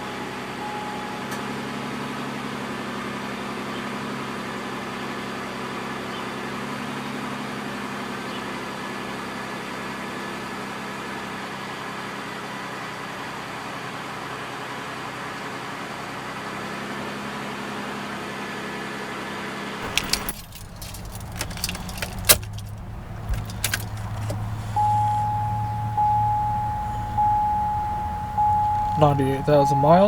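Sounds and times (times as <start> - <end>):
car warning chime: 0.6 - 1.7, 19.8 - 30.0
car engine running: 19.8 - 30.0
keys jangling in ignition: 19.8 - 30.0.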